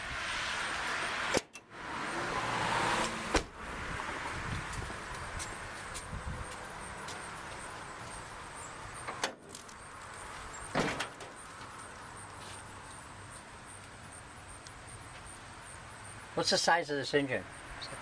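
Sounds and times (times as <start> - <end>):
short clunks: 10.7 - 11.3.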